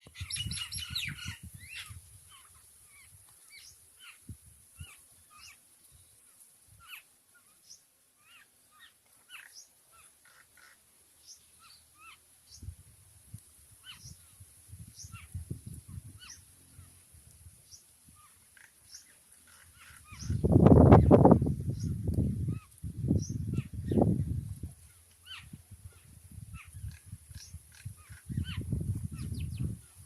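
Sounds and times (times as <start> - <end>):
birds calling: 0.0 - 4.2, 6.8 - 12.7, 15.0 - 17.0, 17.7 - 24.1, 25.0 - 29.8.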